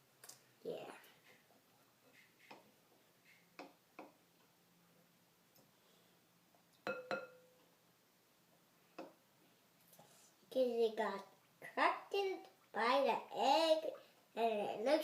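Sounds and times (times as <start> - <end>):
light ringing taps on hard object: 6.8 - 7.5.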